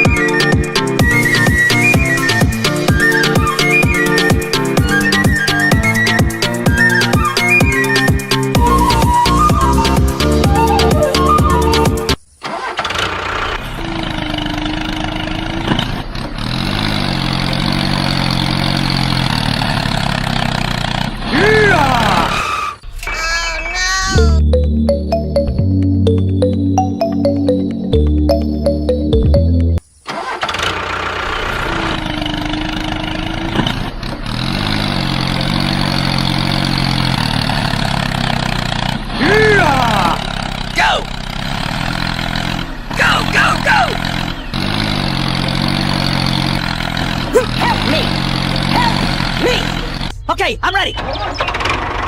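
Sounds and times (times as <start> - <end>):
background music: 0.0 - 12.2, 24.1 - 29.8
engine humming: 0.0 - 52.0.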